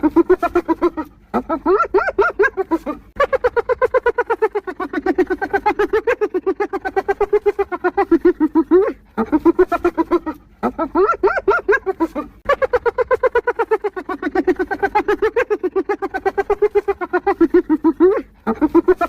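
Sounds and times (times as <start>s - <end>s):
hyena giggling: 0.0s - 19.0s.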